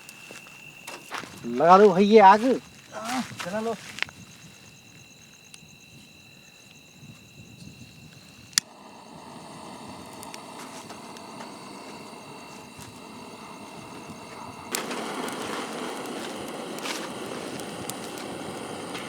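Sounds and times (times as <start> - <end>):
fire crackling: 0.0 - 19.0
flame rushing: 7.2 - 19.0
lighter click: 8.5 - 8.8.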